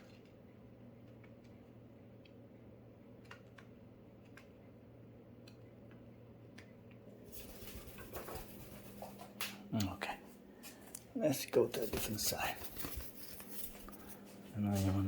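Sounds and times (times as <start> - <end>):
low electrical hum: 0.0 - 15.0
rustling shuffling noise: 11.6 - 15.0.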